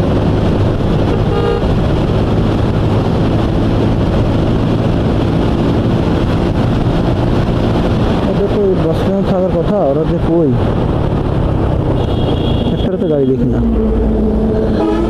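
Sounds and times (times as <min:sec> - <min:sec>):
wind on microphone: 0:00.0 - 0:09.2, 0:10.2 - 0:12.8
motorcycle horn toot: 0:01.1 - 0:01.7, 0:12.0 - 0:13.0.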